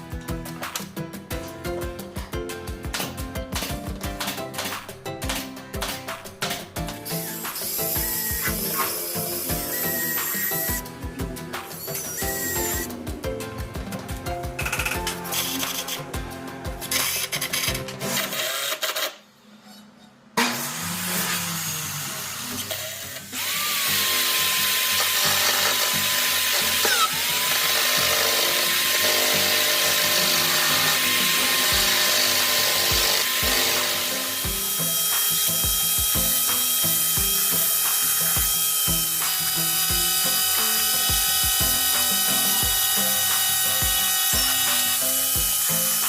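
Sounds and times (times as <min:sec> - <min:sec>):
background music: 0:00.0 - 0:18.6, 0:21.7 - 0:46.0
electric power tool motor: 0:07.0 - 0:10.9, 0:11.7 - 0:13.0, 0:20.4 - 0:46.0.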